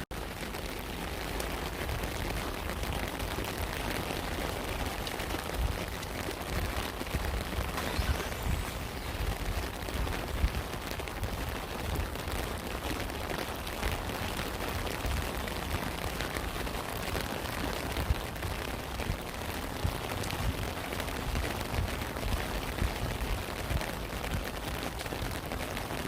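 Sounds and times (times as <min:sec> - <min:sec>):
steady rain: 0:00.0 - 0:26.0
low rumble: 0:04.8 - 0:11.6.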